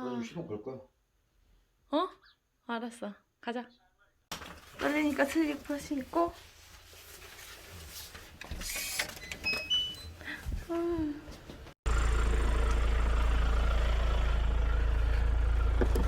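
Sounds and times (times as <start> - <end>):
car engine rumbling: 11.8 - 16.0.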